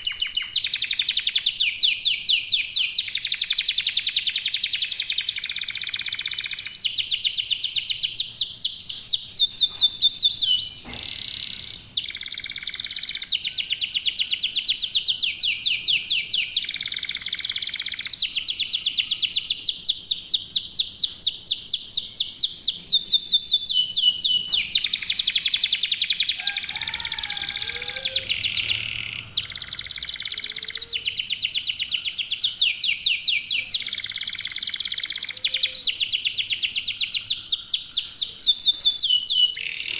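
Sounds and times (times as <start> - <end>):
canaries singing trills: 0.0 - 39.9
faint low bird calls: 22.6 - 39.9.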